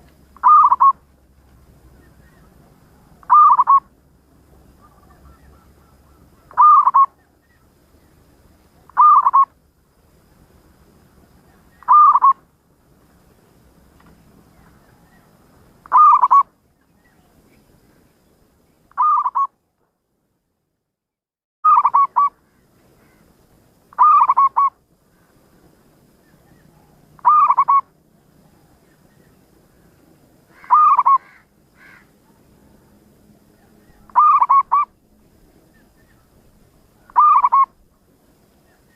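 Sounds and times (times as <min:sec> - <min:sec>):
dove cooing: 0:00.4 - 0:01.0, 0:02.2 - 0:03.9, 0:04.7 - 0:07.2, 0:08.9 - 0:09.5, 0:11.8 - 0:12.4, 0:14.6 - 0:16.5, 0:19.0 - 0:19.5, 0:21.7 - 0:22.3, 0:23.9 - 0:24.8, 0:26.4 - 0:27.9, 0:30.5 - 0:32.4, 0:33.6 - 0:35.0, 0:37.0 - 0:37.8.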